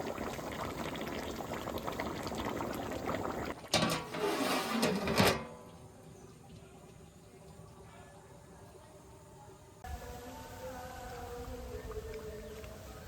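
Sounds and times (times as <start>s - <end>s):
curry bubbling in a pot: 0.0s - 3.8s
pot lid clattering: 3.7s - 5.6s.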